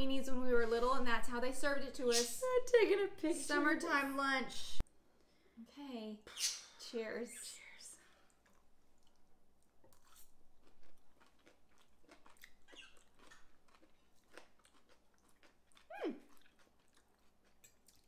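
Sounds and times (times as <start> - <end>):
chewing crunchy salad: 8.2 - 18.0.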